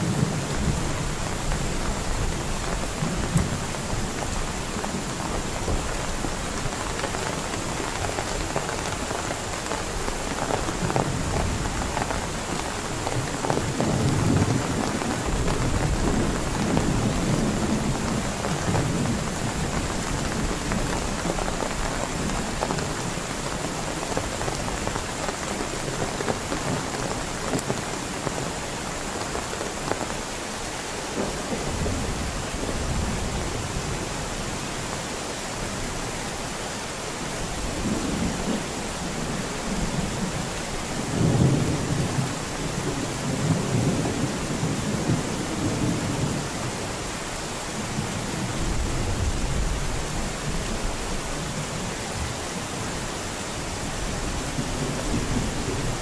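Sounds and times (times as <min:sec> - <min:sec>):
thunder rumbling: 0:00.0 - 0:30.0
heavy rain falling: 0:00.0 - 0:56.0.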